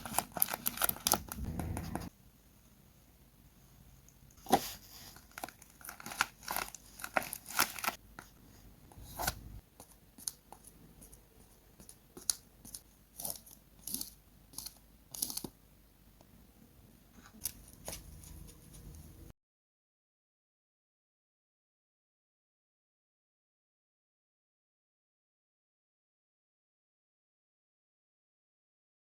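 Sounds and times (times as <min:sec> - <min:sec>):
paper crinkling and tearing: 0:00.0 - 0:01.5, 0:04.6 - 0:08.0
scissors snipping paper: 0:09.2 - 0:15.5.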